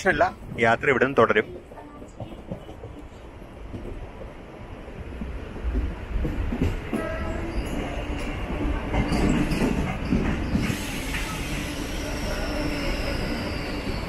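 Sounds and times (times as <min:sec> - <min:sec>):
train rumble with wheel clatter: 0:00.0 - 0:14.0.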